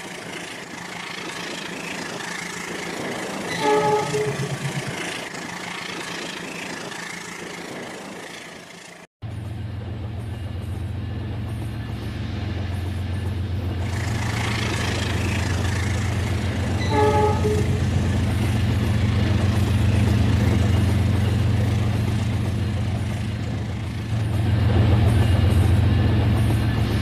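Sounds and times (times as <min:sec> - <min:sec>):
wheels on track: 0:00.0 - 0:27.0
train horn toot: 0:03.5 - 0:04.7, 0:16.7 - 0:18.0.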